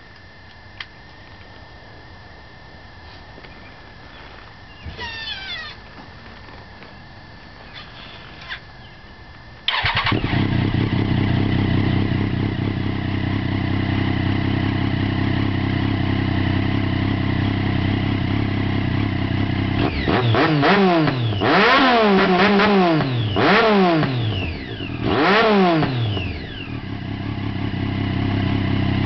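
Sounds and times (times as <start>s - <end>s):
motorcycle engine idling and revving: 9.7s - 29.0s.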